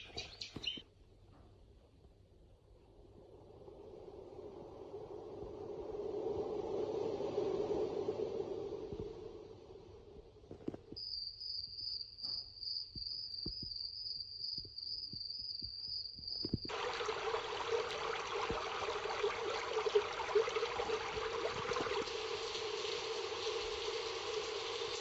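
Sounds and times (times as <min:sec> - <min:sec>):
steady rushing white noise: 0:02.9 - 0:10.5
cricket chirp trill from machine: 0:11.0 - 0:16.7.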